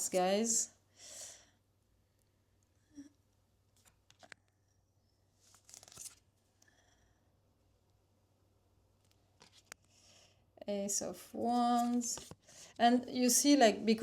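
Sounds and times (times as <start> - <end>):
cards rustling and sliding: 3.8 - 4.4, 5.4 - 6.3, 9.0 - 10.0, 11.7 - 12.5
cards clicking as turned over: 5.5 - 6.2.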